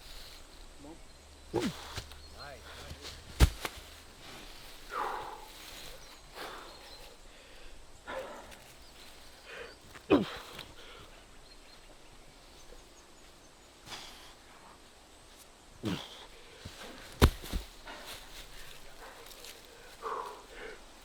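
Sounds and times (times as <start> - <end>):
sharp thud: 3.3 - 3.8, 17.0 - 17.8
man grunting and breathing hard: 9.4 - 11.2, 15.8 - 16.6.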